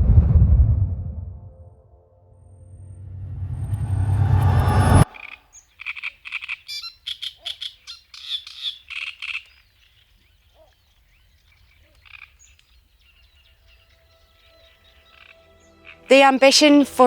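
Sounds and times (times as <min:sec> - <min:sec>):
faint outdoor background: 0:00.9 - 0:17.0
frogs calling: 0:05.1 - 0:13.6, 0:14.9 - 0:16.1.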